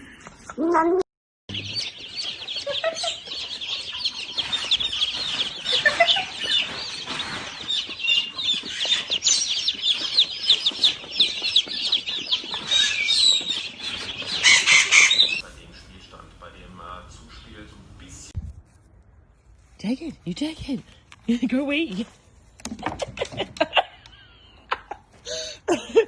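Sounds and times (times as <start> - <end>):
many birds chirping: 1.5 - 18.3.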